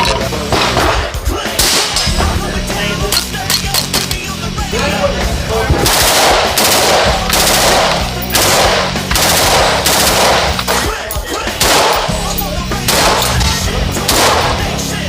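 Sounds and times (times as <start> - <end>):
automatic gunfire bursts: 5.8 - 14.8.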